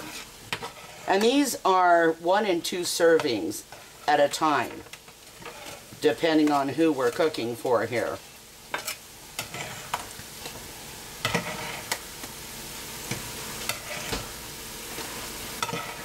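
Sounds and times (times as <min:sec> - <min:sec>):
fork scraping a pan: 0:00.0 - 0:01.5, 0:03.2 - 0:04.1, 0:04.9 - 0:07.4, 0:08.7 - 0:10.6, 0:11.2 - 0:12.0, 0:13.1 - 0:16.0
noodles sizzling in a pan: 0:00.0 - 0:16.0.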